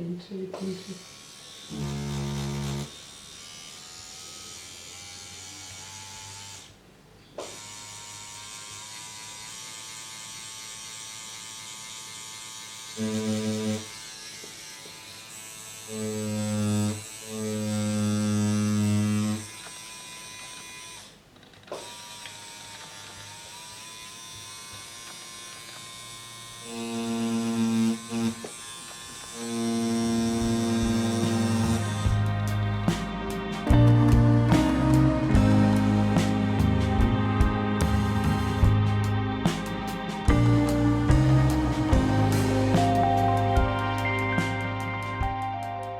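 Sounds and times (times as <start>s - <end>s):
tattoo machine buzzing: 0.8s - 6.7s, 7.4s - 21.2s, 21.8s - 45.9s
higher-pitched hum: 30.1s - 45.9s.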